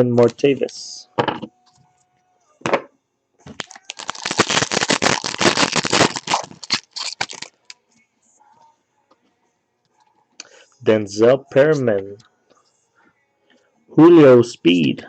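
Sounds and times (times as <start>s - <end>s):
plastic wrapper crinkling and tearing: 3.5s - 7.8s.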